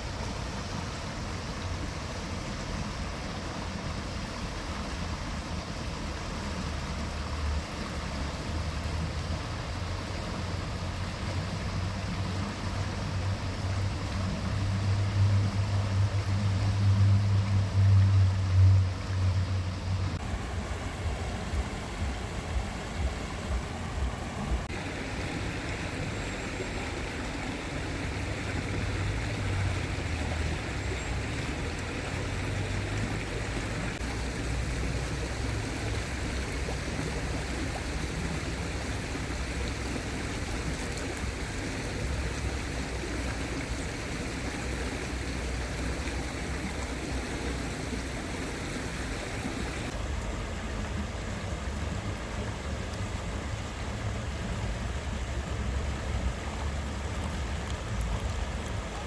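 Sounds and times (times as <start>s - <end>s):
stream rushing water: 0.0s - 59.0s
low rumble: 13.6s - 24.7s.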